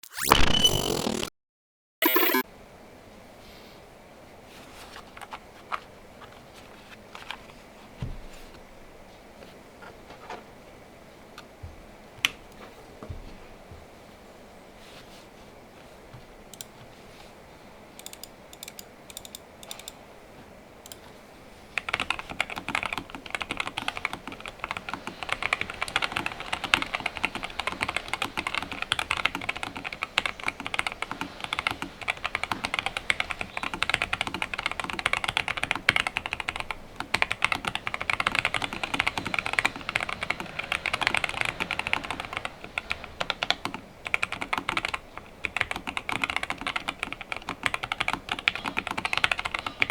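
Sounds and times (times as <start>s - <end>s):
typing on mechanical keyboard: 18.0s - 20.0s, 21.8s - 49.9s.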